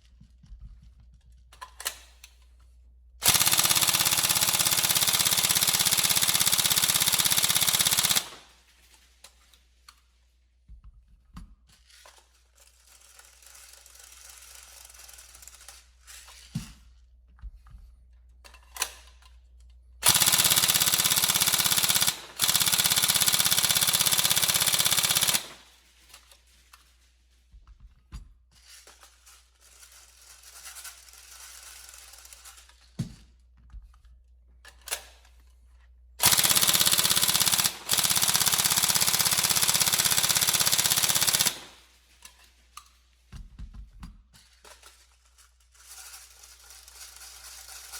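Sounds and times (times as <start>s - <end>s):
airsoft gun firing full-auto: 3.2s - 8.6s, 20.0s - 25.8s, 36.2s - 42.0s.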